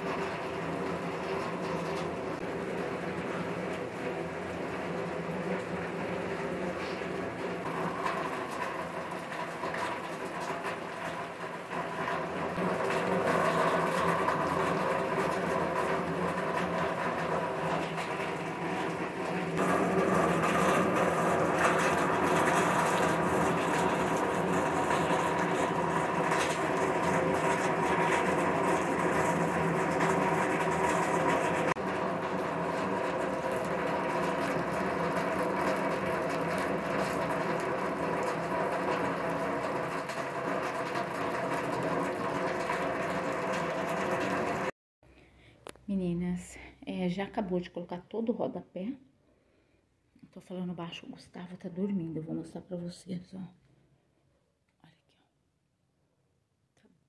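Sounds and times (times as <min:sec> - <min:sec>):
heavy rain pouring: 0:00.0 - 0:44.7.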